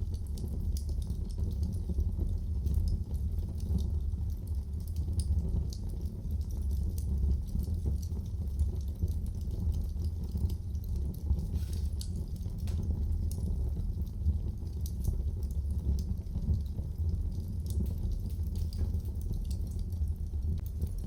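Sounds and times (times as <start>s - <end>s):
wood fire burning: 0.0s - 21.0s.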